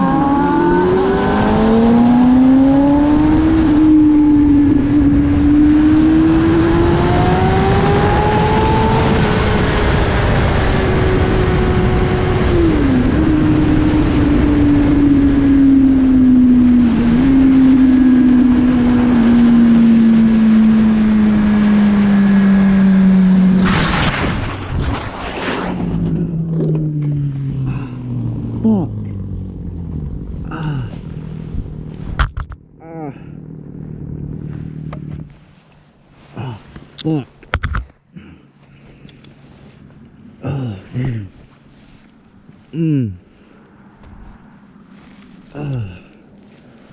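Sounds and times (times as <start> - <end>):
sport bike engine revving: 0.0 - 23.8, 32.8 - 35.4
wind rush: 23.6 - 28.6, 29.2 - 32.4.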